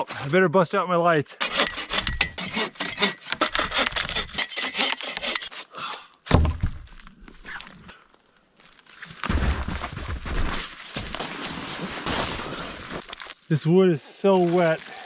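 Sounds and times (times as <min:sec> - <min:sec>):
hand saw cutting wood: 0:01.4 - 0:05.8
loud thud: 0:06.3 - 0:06.9, 0:09.2 - 0:10.5.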